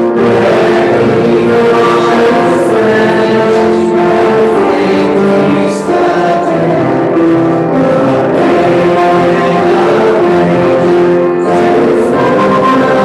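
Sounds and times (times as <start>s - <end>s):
choir singing a hymn: 0.0s - 13.0s
instrumental accompaniment: 0.0s - 13.0s.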